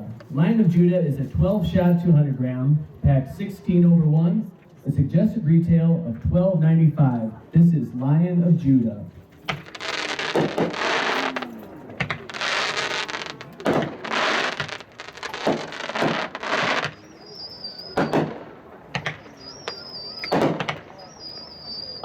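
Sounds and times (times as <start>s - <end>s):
firework launch thumps: 9.4s - 17.0s, 18.0s - 21.0s
crackling bursts in the air: 9.4s - 17.2s.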